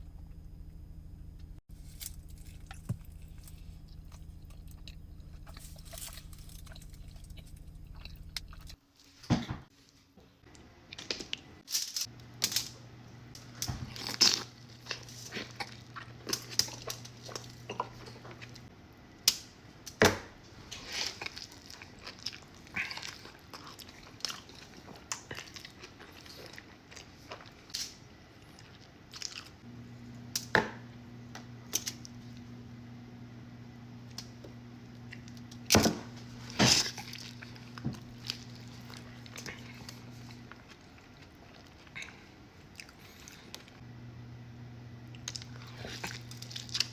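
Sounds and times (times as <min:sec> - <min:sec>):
person chewing and biting food: 0:01.7 - 0:08.8, 0:13.9 - 0:18.7, 0:20.8 - 0:29.6, 0:36.4 - 0:43.8, 0:45.1 - 0:46.9
crisp crunches: 0:13.9 - 0:17.6, 0:36.4 - 0:42.2, 0:45.1 - 0:46.9.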